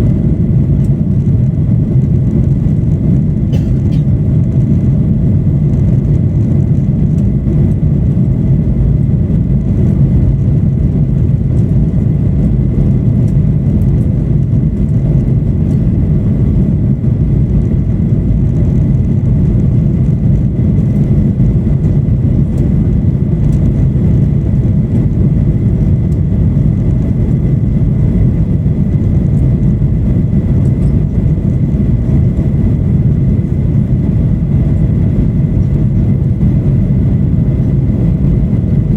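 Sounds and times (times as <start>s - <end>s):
jet engine cabin rumble: 0.0s - 38.9s
faint thin whine: 18.9s - 38.9s.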